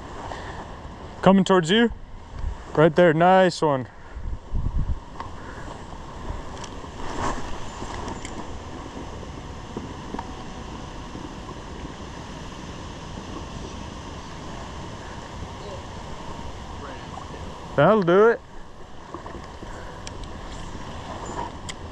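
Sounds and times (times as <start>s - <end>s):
wind buffeting microphone: 4.1s - 21.9s.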